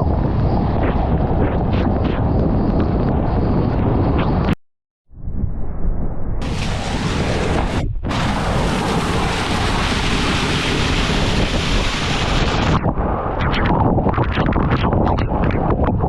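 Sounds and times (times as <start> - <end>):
wind buffeting microphone: 0.0 - 4.6, 6.4 - 16.0
heavy rain pouring: 6.4 - 12.8.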